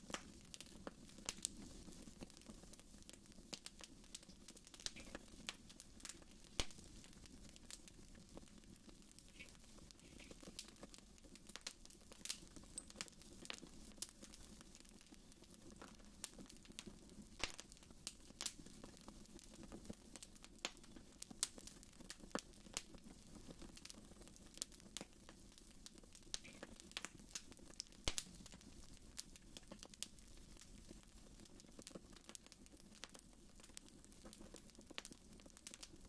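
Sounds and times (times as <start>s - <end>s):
low rumble of flames: 0.0s - 36.0s
wood fire crackling: 0.0s - 36.0s.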